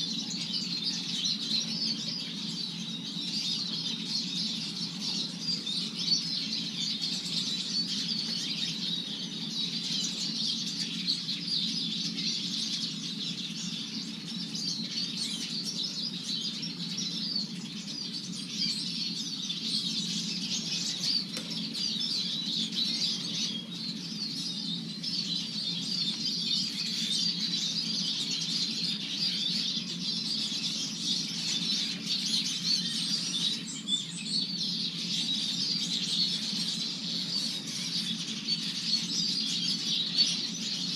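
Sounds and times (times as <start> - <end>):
birds twittering and chattering: 0.0 - 40.9.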